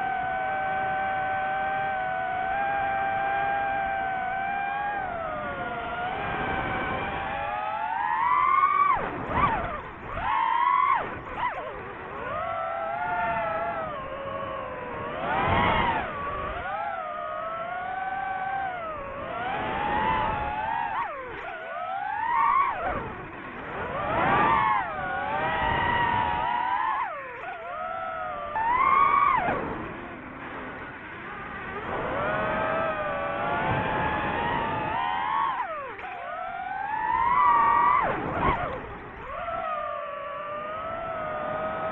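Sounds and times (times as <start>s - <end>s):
quadcopter motors whining: 0.0s - 41.9s.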